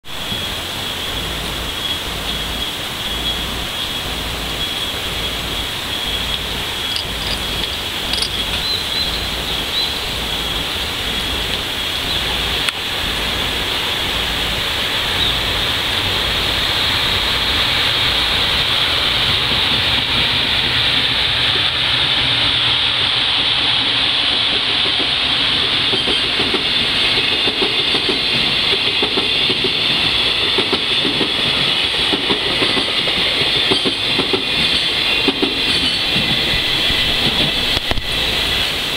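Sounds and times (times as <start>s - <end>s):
steady hiss: 0.0s - 38.9s
freight wagons rolling by: 1.1s - 13.4s.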